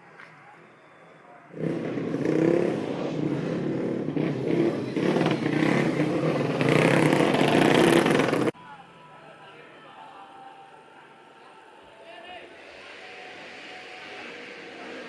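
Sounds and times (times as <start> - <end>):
motorcycle engine running: 1.5 - 8.5.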